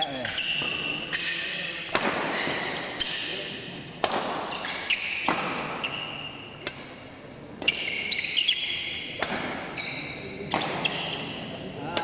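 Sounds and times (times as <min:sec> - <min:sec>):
shoe squeaks on court floor: 0:00.0 - 0:01.6, 0:07.6 - 0:11.5
racket hitting shuttlecock: 0:00.2 - 0:03.4, 0:04.0 - 0:07.0, 0:07.6 - 0:09.8, 0:10.4 - 0:11.3.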